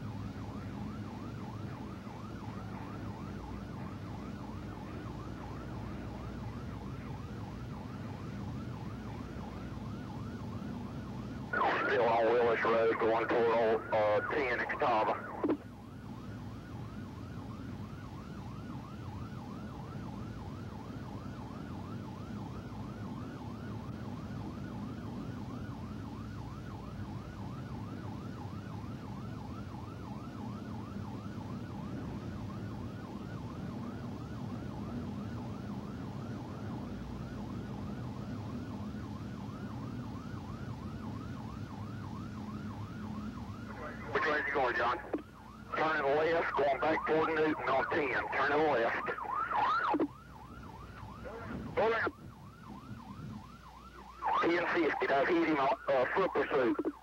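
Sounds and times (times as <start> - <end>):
police siren fast yelp: 0.9 - 57.0
car engine and road noise: 47.8 - 54.3.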